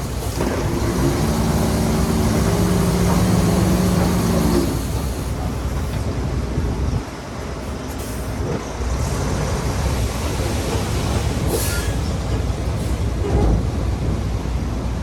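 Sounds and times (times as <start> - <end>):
bulldozer engine rumbling: 0.0 - 15.0
steel tracks squealing: 8.6 - 13.8.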